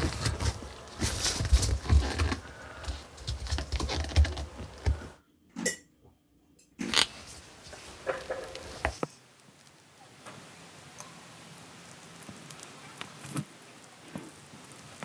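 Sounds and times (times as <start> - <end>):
clicking and rustling handling: 0.0 - 5.1.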